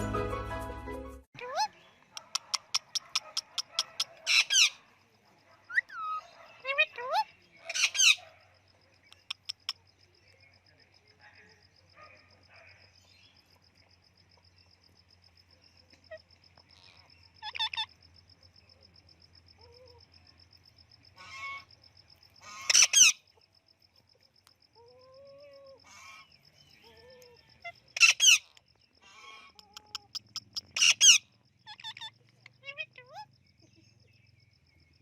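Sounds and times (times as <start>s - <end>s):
parrot screeching squawks: 2.6s - 4.8s, 5.7s - 8.2s, 21.2s - 21.6s, 22.4s - 23.2s, 28.0s - 33.3s.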